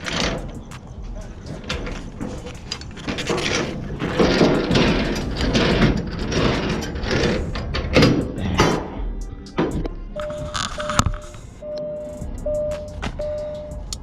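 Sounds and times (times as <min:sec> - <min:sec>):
metallic clicking and grinding of crank: 0:00.0 - 0:11.4.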